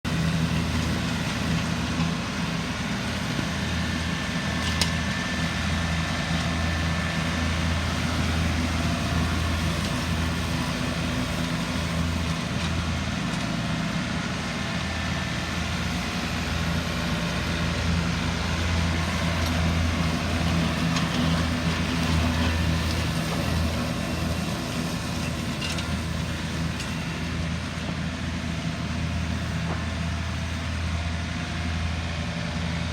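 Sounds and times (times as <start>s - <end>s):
tractor engine running steadily: 0.0s - 32.9s.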